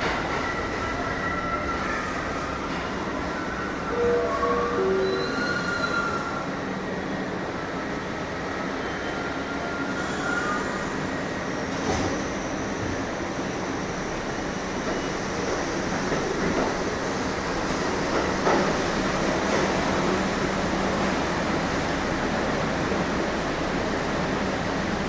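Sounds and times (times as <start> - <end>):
steel wheels squealing on rails: 0.0 - 6.7, 8.5 - 16.9
subway train rumbling: 0.0 - 25.0.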